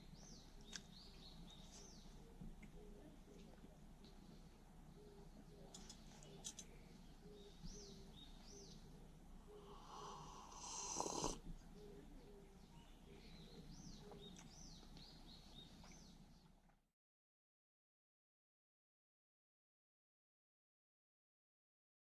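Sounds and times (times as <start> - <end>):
small birds chirping: 0.0 - 16.7
soft low hum: 0.0 - 16.8.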